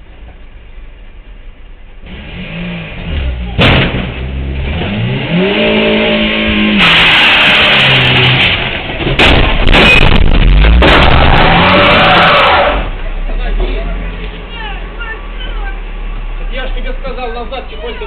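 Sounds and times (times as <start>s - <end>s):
car engine revving: 2.0s - 13.1s.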